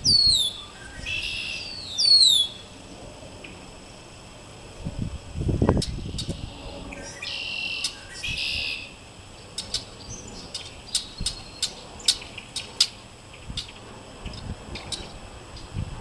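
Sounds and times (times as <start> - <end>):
blackbird buzzy call: 0.0 - 2.8, 5.6 - 15.7.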